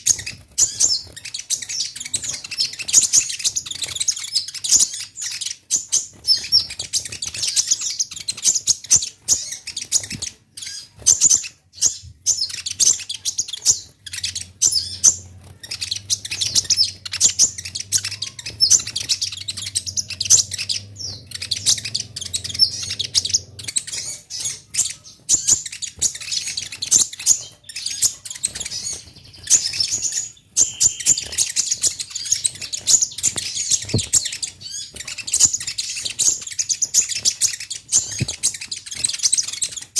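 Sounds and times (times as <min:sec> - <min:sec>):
sunbird twittering chirps: 0:00.0 - 0:39.9
faint low hum: 0:11.8 - 0:35.8.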